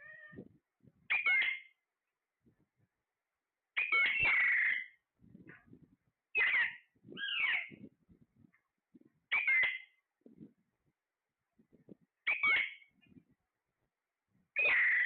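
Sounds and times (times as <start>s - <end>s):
parrot calling: 1.1s - 1.7s, 3.8s - 5.0s, 6.4s - 7.8s, 9.3s - 9.9s, 12.3s - 12.8s, 14.6s - 15.0s.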